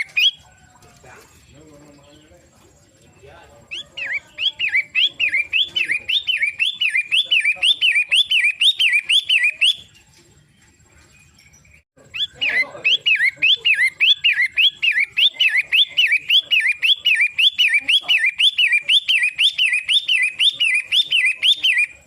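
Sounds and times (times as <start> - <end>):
shrike singing: 0.0 - 22.0.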